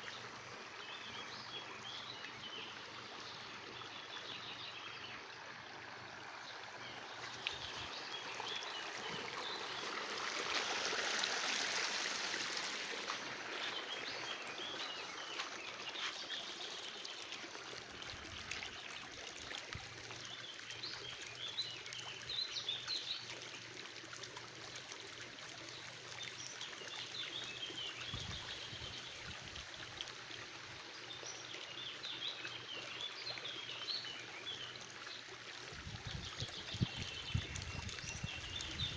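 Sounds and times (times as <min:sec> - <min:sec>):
stream trickling: 0:00.0 - 0:38.9
small birds twittering: 0:06.8 - 0:11.7, 0:12.3 - 0:17.7, 0:36.0 - 0:38.9.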